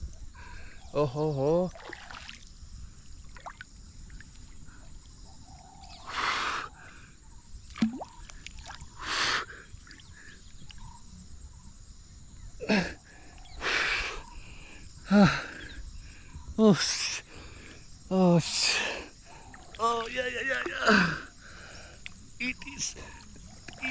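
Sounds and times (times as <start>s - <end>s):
man grunting: 20.7s - 21.3s.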